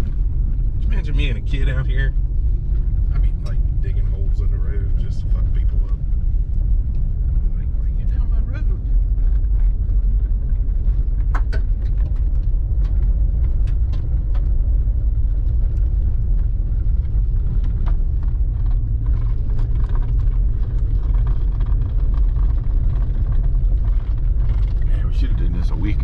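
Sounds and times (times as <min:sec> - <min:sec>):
car engine and tyres rumbling: 0:00.0 - 0:26.0
small clicks and rattles: 0:08.6 - 0:26.0.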